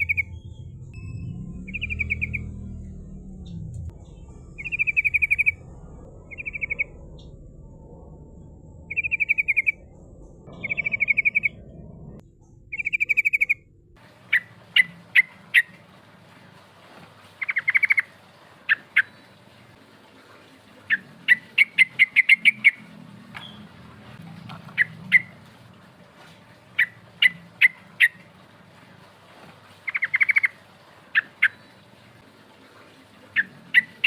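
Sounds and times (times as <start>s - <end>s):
bulbul calling with trills: 0.0s - 0.6s, 1.6s - 2.9s, 4.5s - 5.6s, 6.3s - 7.0s, 8.9s - 9.8s, 10.5s - 11.6s, 12.7s - 13.6s, 17.4s - 18.1s, 29.8s - 31.6s.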